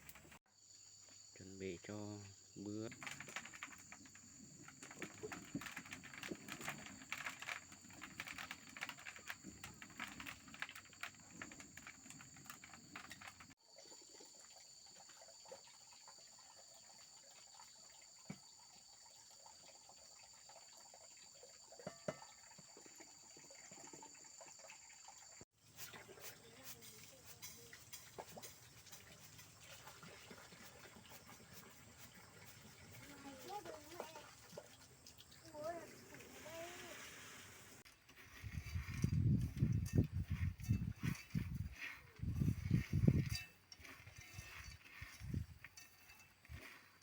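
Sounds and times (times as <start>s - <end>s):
dry vegetation rustling: 36.2s - 47.0s.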